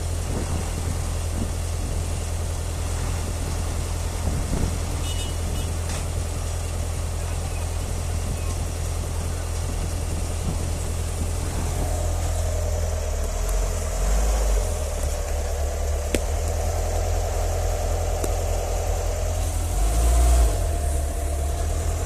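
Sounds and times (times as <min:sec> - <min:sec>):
engine humming: 0:00.0 - 0:22.0
wind rumble on microphone: 0:00.0 - 0:22.0.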